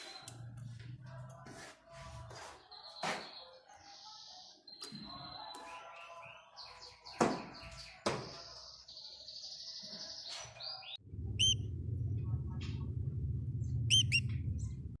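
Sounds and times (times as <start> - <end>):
canary chirping: 8.7 - 11.6, 13.8 - 14.3
low rumble: 11.0 - 15.0
canary trilling: 11.4 - 11.6, 13.8 - 14.3.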